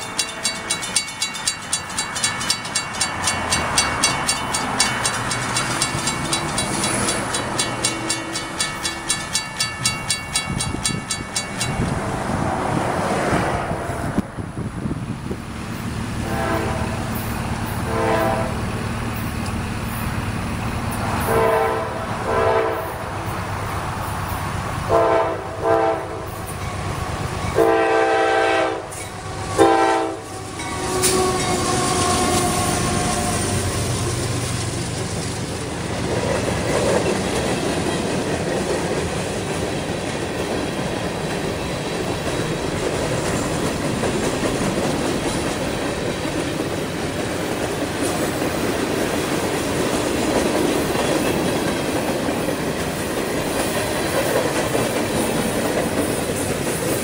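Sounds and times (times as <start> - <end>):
freight cars clacking on rails: 0.0 - 14.3, 28.8 - 57.0
locomotive engine rumble: 0.0 - 25.0, 26.1 - 57.0
locomotive horn blasts: 16.2 - 18.7, 21.2 - 23.1, 24.9 - 26.5, 27.5 - 33.6.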